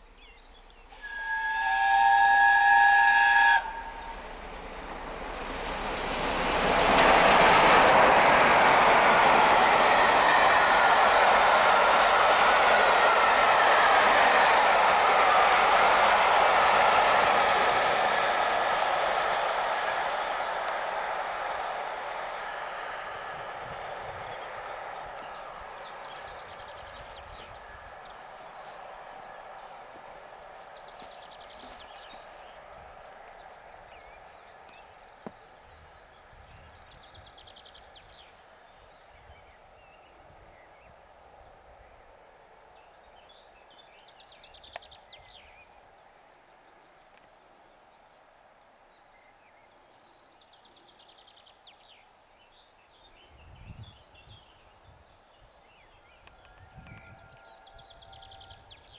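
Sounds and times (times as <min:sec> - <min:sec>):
small birds singing: 0:00.0 - 0:01.0, 0:23.0 - 0:42.1
rumble of receding steam train: 0:00.0 - 0:47.9, 0:49.2 - 0:58.9.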